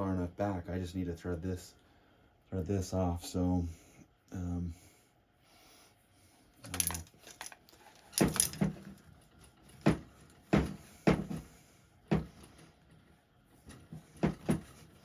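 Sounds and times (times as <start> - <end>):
metal clicks and knocks: 6.6 - 11.4.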